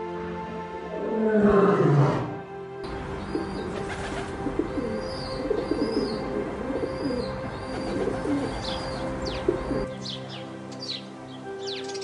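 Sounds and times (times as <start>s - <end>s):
small birds chirping: 3.1s - 12.0s
dove cooing: 3.2s - 9.9s.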